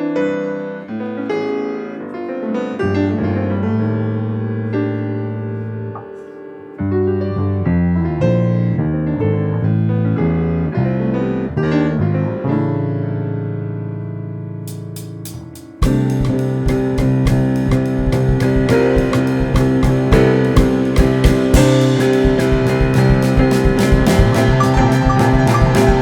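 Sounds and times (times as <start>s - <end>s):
electric piano chords: 0.0s - 26.0s
jazz fusion band playing: 14.7s - 26.0s.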